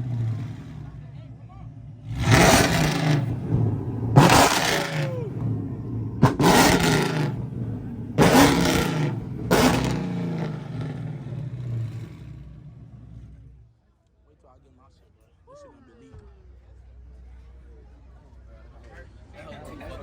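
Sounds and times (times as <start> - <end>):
car engine revving: 0.0 - 13.7.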